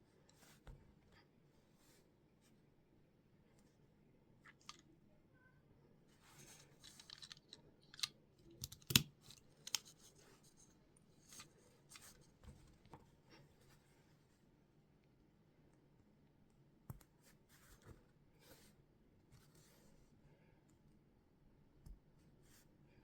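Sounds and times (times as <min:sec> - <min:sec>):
plastic toy bricks clicking: 0:06.8 - 0:09.9.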